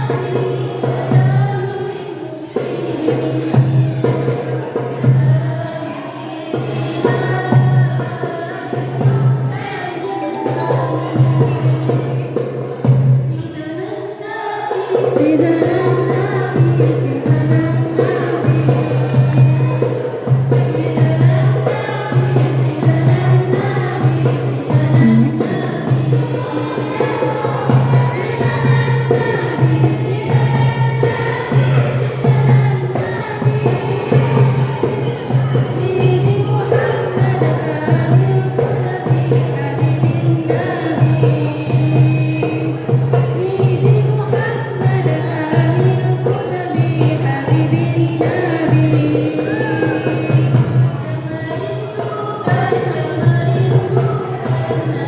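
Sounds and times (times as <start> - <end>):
group singing devotional song: 0.0 - 55.0
hand percussion beat: 6.6 - 13.1, 15.0 - 55.0.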